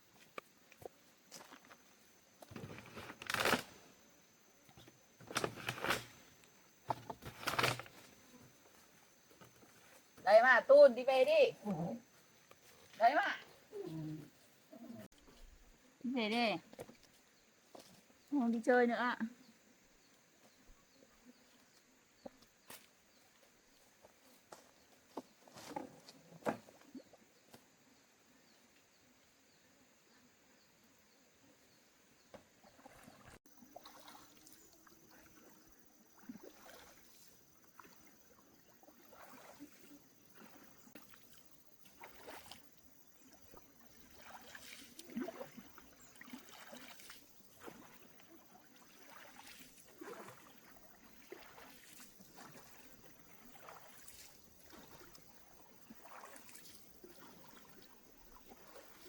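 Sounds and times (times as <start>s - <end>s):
paddle splashes and sloshing: 32.4s - 59.0s.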